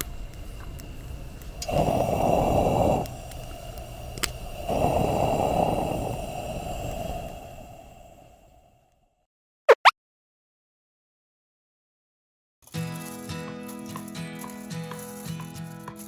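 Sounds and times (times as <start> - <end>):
campfire crackling: 0.0 - 8.7
breathy blowing rushes: 0.0 - 9.0.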